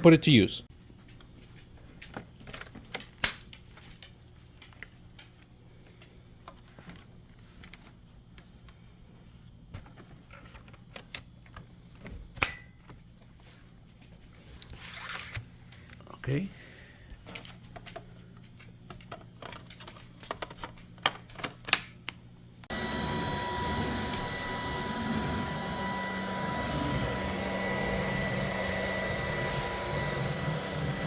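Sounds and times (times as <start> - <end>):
stick vacuum running: 22.7 - 31.0.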